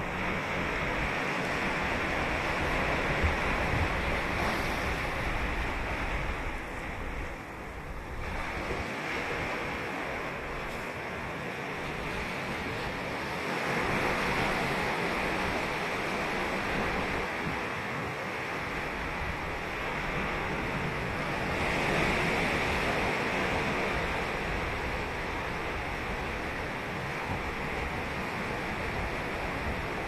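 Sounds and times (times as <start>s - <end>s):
waves breaking on beach: 0.0s - 30.0s
wind on microphone: 0.0s - 30.0s.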